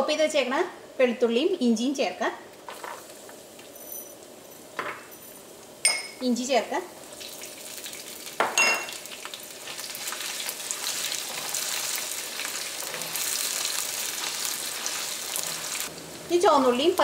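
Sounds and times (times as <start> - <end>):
garlic sizzling in hot oil: 2.5 - 4.8, 5.4 - 17.0.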